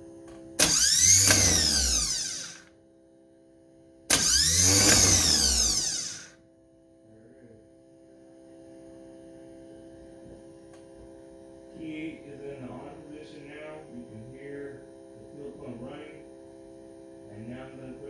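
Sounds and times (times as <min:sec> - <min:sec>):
faint steady hum: 0:00.0 - 0:18.0
starter motor whine: 0:00.6 - 0:02.7, 0:04.1 - 0:06.4.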